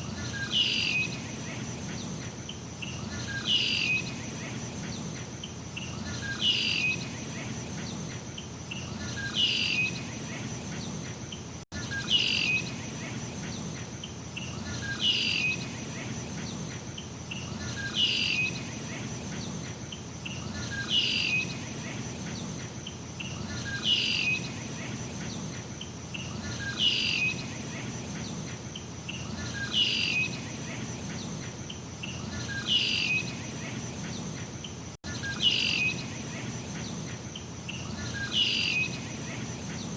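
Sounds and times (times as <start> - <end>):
insect chorus: 0.0 - 39.9.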